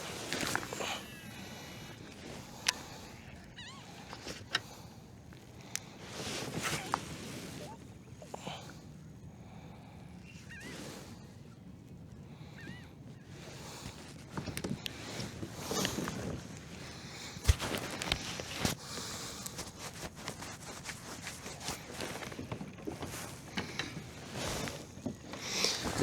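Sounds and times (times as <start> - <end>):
gear rustling: 0.0 - 7.7, 13.8 - 26.0.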